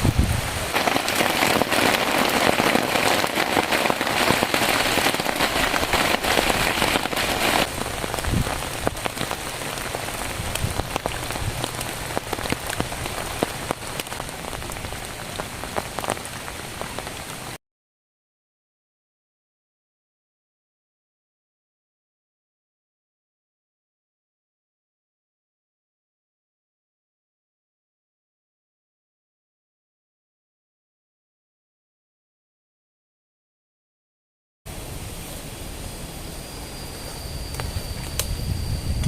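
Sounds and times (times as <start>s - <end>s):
heavy rain pattering: 0.0s - 17.6s, 34.7s - 39.0s.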